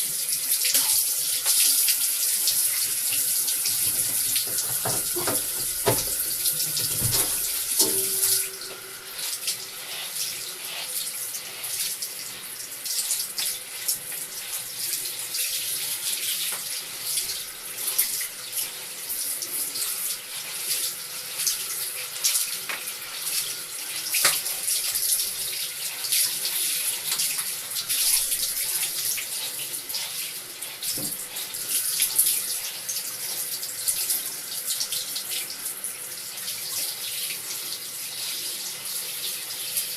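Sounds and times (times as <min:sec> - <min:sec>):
tap water running into sink: 0:00.5 - 0:10.4, 0:22.2 - 0:34.0.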